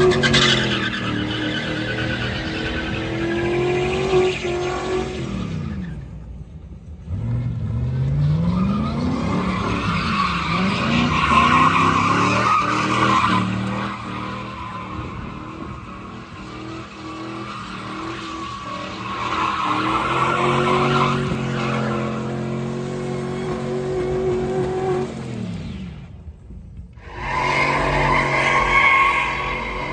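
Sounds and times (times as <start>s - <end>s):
tires squealing: 0.0s - 6.3s, 7.1s - 25.9s, 26.9s - 29.9s
engine revving: 7.0s - 26.1s.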